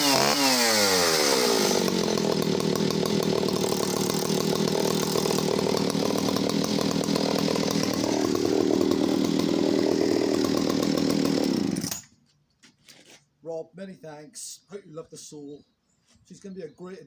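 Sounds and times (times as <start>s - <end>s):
two-stroke chainsaw running: 0.0s - 12.1s.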